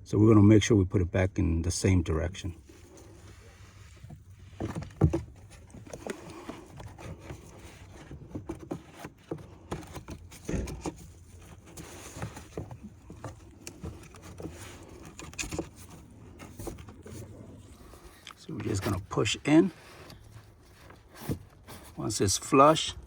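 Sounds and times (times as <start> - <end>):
air filter rustling: 2.3 - 23.0.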